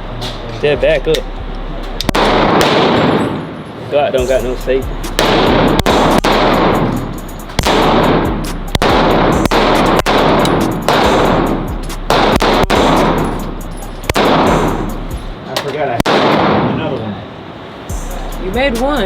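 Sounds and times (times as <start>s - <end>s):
echoing gunshots: 2.1s - 3.6s, 5.0s - 15.2s, 16.0s - 17.0s.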